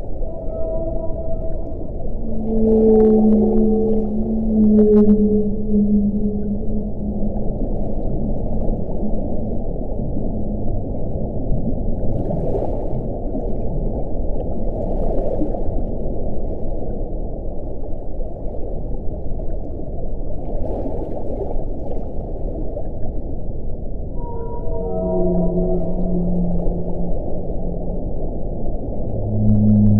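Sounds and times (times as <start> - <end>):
howling tone falling in pitch: 0.0 - 9.7, 24.1 - 29.9.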